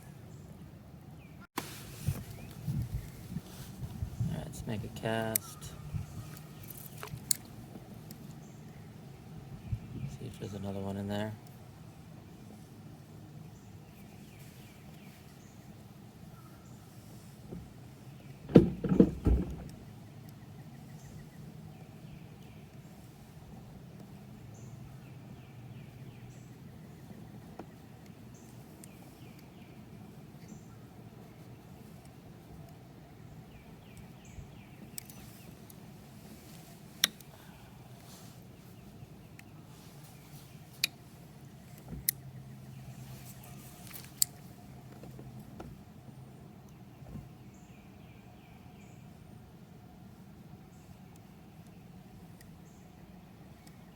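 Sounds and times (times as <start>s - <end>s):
distant motor vehicle hum: 1.6s - 53.9s
paddle knocking against kayak: 18.5s - 19.8s.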